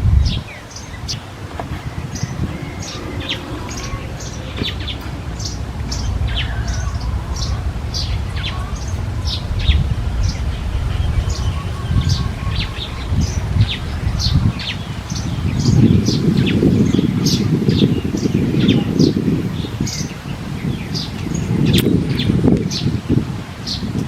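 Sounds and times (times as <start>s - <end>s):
low rumble: 0.0s - 18.4s
birds chirping: 0.0s - 24.0s.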